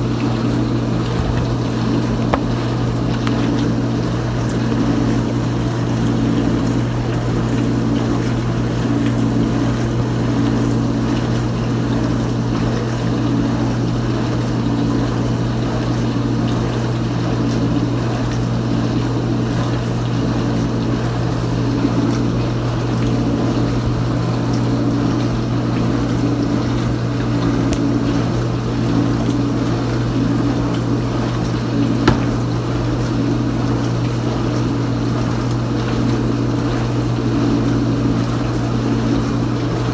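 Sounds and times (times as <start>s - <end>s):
dishwasher motor hum: 0.0s - 39.9s
water spraying inside dishwasher: 30.6s - 34.4s.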